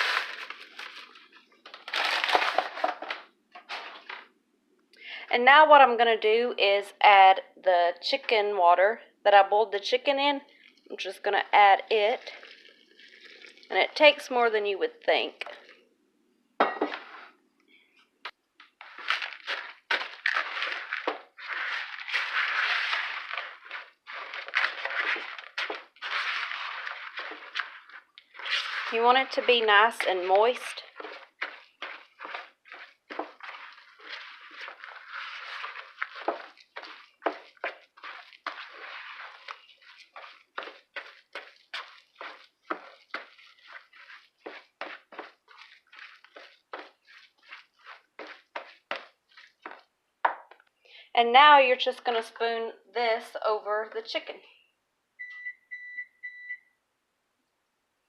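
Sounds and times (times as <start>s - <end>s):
stuffing stirred in a bowl: 0.0s - 2.9s, 9.8s - 15.9s, 16.9s - 50.5s.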